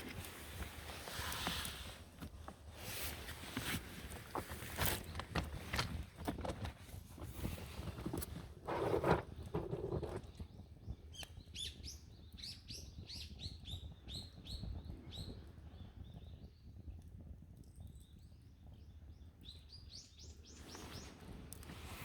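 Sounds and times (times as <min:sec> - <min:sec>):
small birds chirping: 0:09.3 - 0:17.0, 0:17.6 - 0:22.0.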